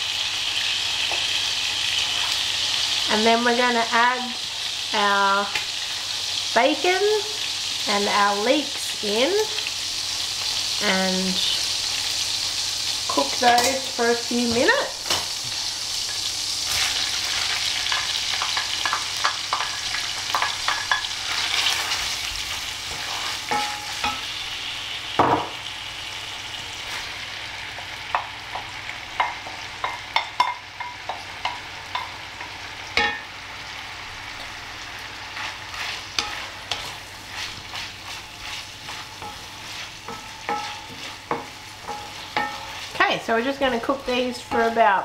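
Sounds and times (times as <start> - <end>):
bacon and leeks sizzling: 0.0 - 45.0.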